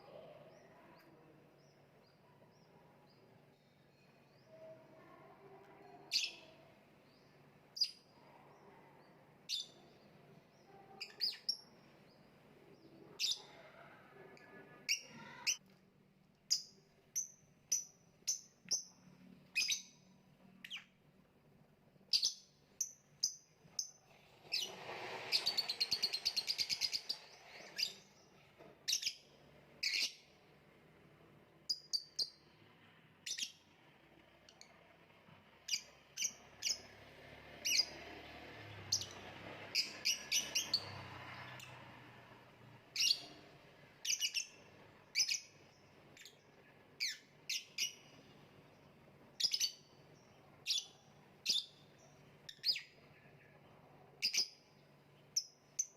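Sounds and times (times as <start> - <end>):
lovebird chirping: 0.0 - 8.8, 9.4 - 13.6, 16.5 - 21.0, 22.1 - 30.4, 31.7 - 32.5, 33.2 - 33.7, 35.6 - 36.9, 37.6 - 38.0, 38.9 - 41.8, 42.9 - 43.4, 44.0 - 48.2, 49.4 - 53.4, 54.2 - 55.9.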